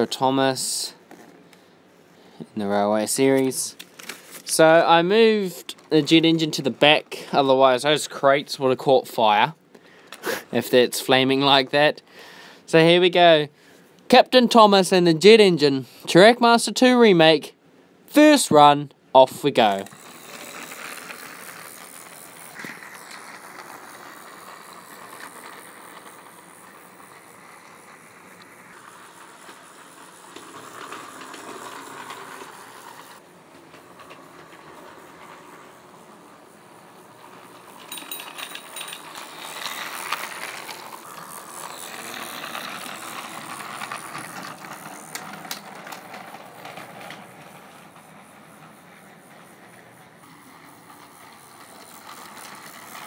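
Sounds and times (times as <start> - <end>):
toy train motor whirring: 0.0 - 1.7, 2.3 - 8.6, 19.2 - 53.0
clicks and rattles: 37.3 - 48.0.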